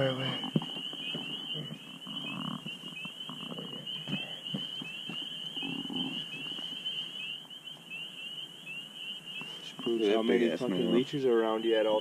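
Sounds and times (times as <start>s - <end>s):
night insects chirping: 0.0s - 12.0s.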